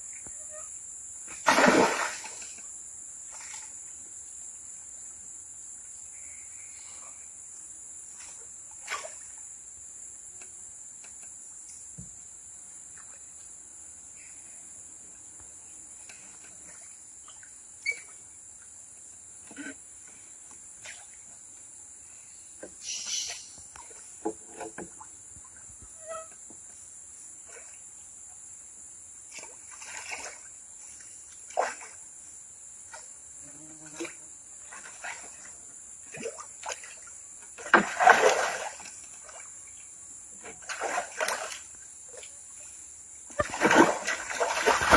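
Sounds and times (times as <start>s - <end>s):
insects chorus: 0.0s - 44.9s
water splashes: 1.3s - 2.6s, 29.3s - 32.0s, 33.9s - 39.8s, 40.4s - 42.4s, 43.3s - 44.9s.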